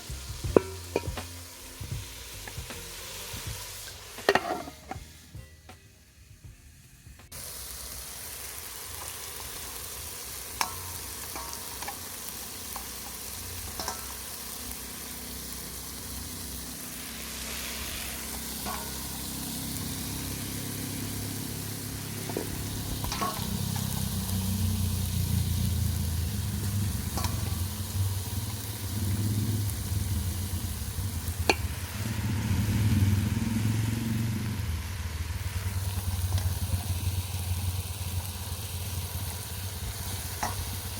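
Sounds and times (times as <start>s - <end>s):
food sizzling in a pot: 0.0s - 40.9s
low rumble: 22.5s - 40.8s.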